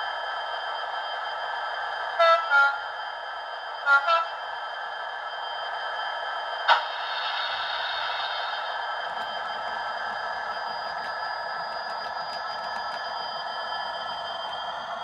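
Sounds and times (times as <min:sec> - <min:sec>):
model locomotive engine hum: 0:00.0 - 0:15.0.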